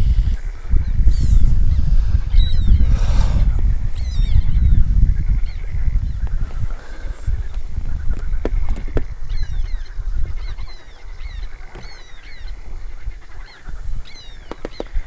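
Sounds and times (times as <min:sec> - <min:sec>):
low rumble: 0:01.5 - 0:05.9.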